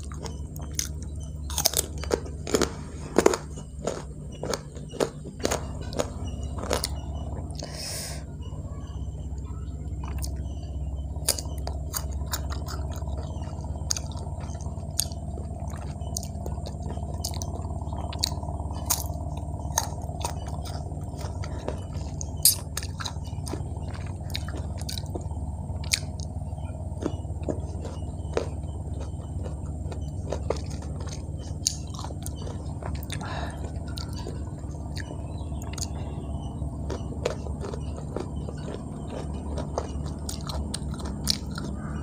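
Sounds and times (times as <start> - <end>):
chewing crisp fruit: 0.0 - 42.0
steady low hum: 0.0 - 42.0
wet mouth clicks: 7.6 - 7.9.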